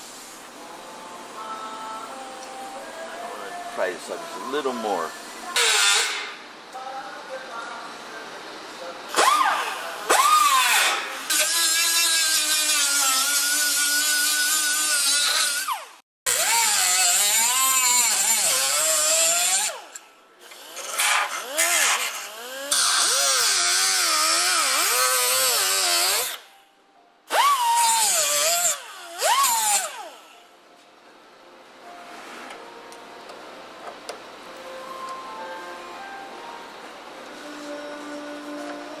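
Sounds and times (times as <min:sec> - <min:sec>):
power grinder on steel: 0:09.3 - 0:26.4, 0:27.3 - 0:30.3.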